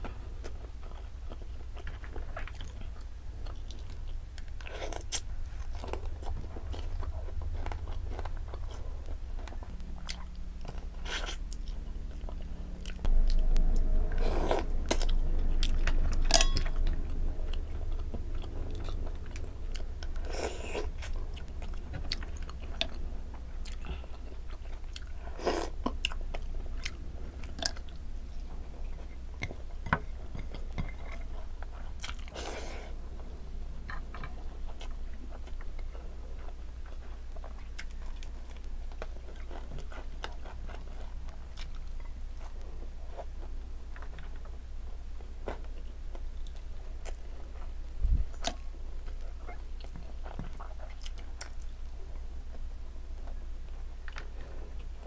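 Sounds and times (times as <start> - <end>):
person chewing and biting: 0.4 - 33.0
low rumble: 5.3 - 45.0.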